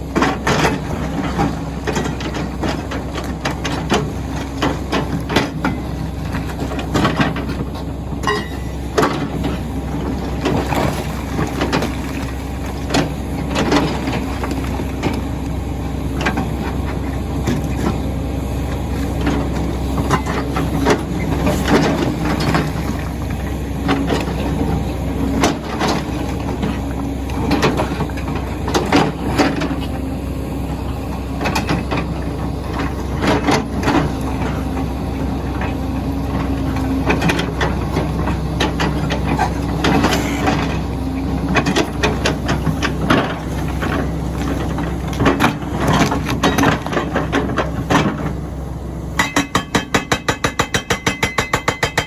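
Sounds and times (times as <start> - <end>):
diesel engine hum: 0.0 - 52.0
hydraulic breaker hammering stone: 8.2 - 9.4, 49.2 - 52.0.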